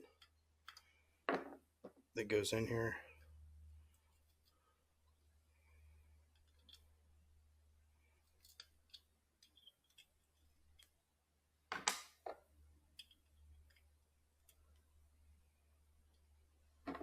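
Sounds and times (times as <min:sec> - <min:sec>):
faint clicks of small parts: 0:00.0 - 0:01.0, 0:06.3 - 0:06.9, 0:08.1 - 0:11.0, 0:11.9 - 0:14.9.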